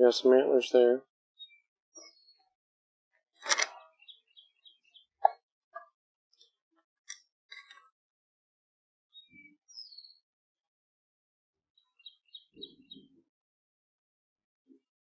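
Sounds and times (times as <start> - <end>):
birds chirping: 0.0 - 2.5, 3.4 - 5.4, 9.1 - 10.2, 11.8 - 13.3.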